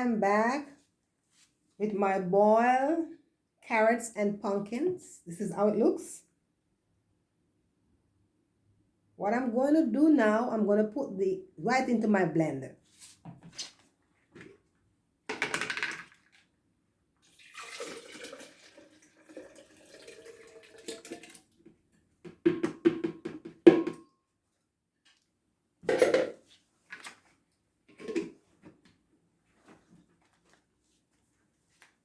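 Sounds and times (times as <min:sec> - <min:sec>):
liquid splashing into blender jug: 0:17.2 - 0:21.6
pot knocking against jug: 0:22.3 - 0:24.1.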